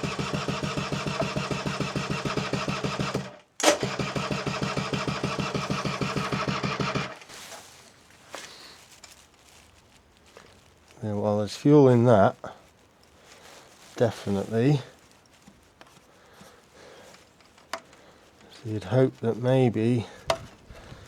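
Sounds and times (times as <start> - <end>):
electric starter cranking engine: 0.0 - 7.3.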